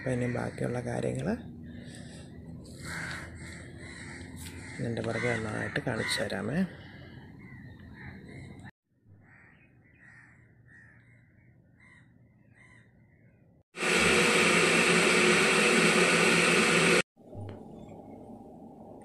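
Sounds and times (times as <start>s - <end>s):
crows cawing: 2.8s - 8.2s, 9.2s - 12.9s.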